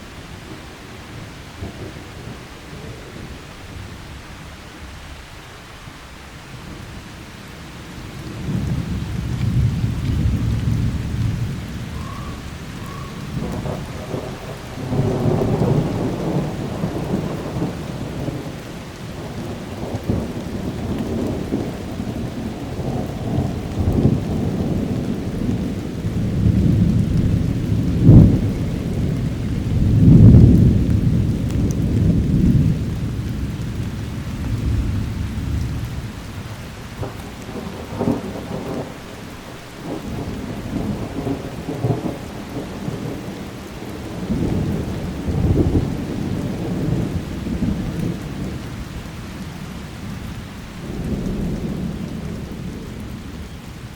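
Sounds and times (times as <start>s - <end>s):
steady rain: 0.0s - 53.9s
thunder rolling: 8.4s - 18.6s, 19.2s - 36.2s, 39.8s - 48.7s.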